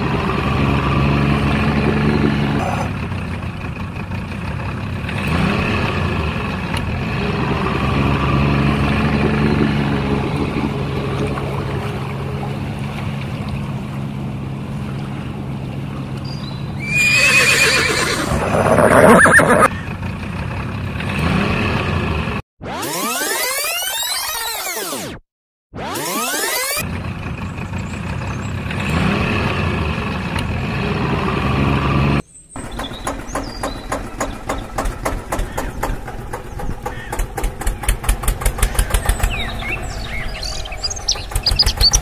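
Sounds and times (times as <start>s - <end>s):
vehicle engine drone: 0.0s - 22.4s, 26.0s - 42.0s
shrill sound: 16.8s - 19.7s.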